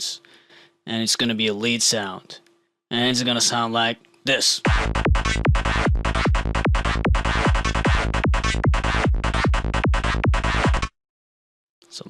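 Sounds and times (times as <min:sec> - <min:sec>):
kick drum: 0:04.7 - 0:10.9.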